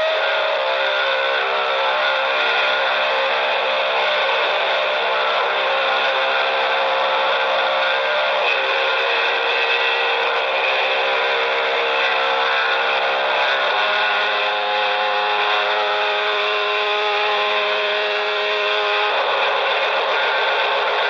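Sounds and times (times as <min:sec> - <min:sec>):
chainsaw running: 0:00.0 - 0:21.0.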